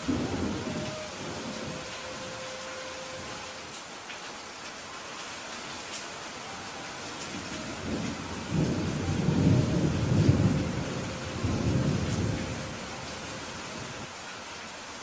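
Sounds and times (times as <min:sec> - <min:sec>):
low roll of thunder: 0:00.0 - 0:02.4, 0:07.3 - 0:14.1
steady rain falling: 0:00.0 - 0:15.0.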